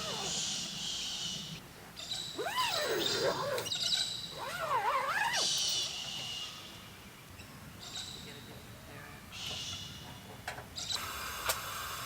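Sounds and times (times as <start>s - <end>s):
wavering howl-like calls: 2.4s - 3.8s.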